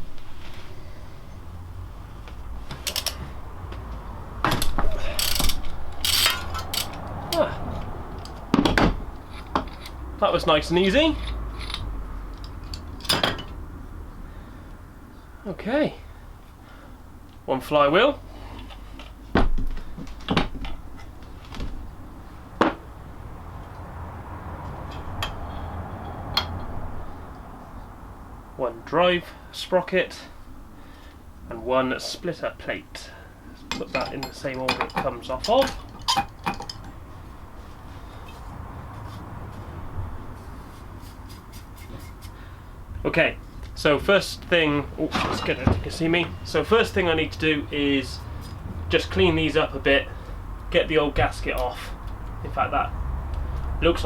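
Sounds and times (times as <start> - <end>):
metal parts clinking on workbench: 5.1 - 7.4, 11.2 - 13.6, 33.7 - 37.0.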